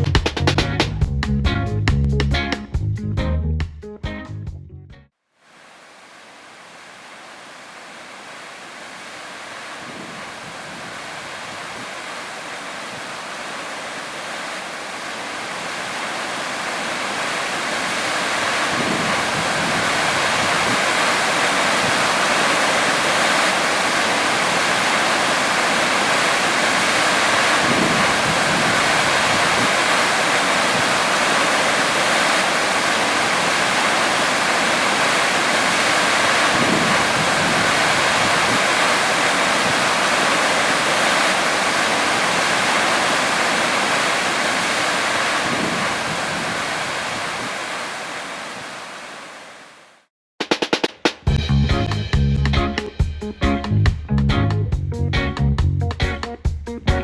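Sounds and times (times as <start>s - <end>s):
water rushing: 5.4s - 50.1s.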